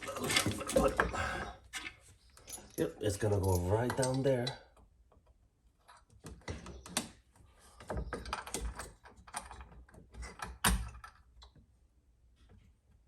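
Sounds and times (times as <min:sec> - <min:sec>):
hand tools and parts clicking: 0:00.0 - 0:07.1.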